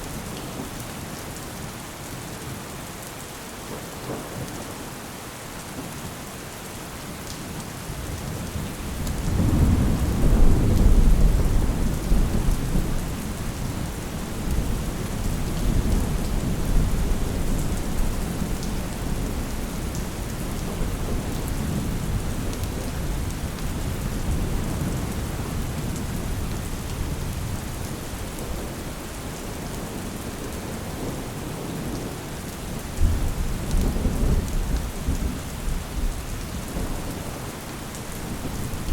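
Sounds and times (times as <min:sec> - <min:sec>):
steady rain: 0:00.0 - 0:38.9
thunder rumbling: 0:08.9 - 0:23.3.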